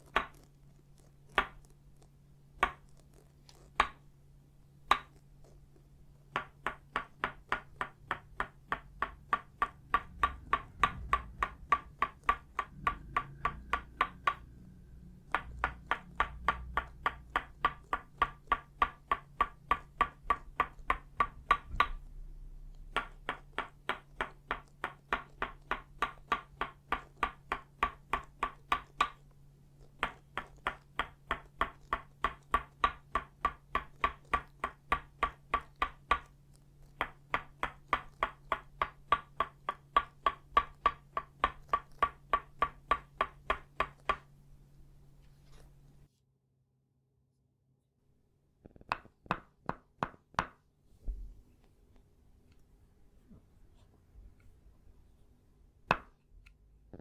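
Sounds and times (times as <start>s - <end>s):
wooden mallet tapping peg: 6.4s - 22.1s.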